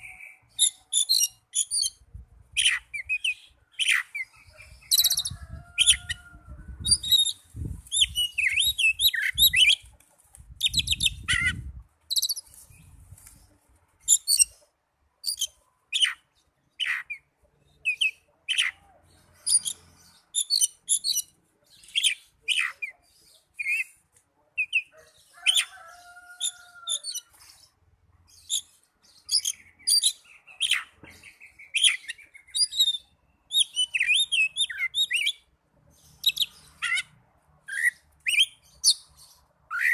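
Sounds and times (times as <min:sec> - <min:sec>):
bird singing chirps and whistles: 0:06.8 - 0:09.8, 0:29.3 - 0:35.4.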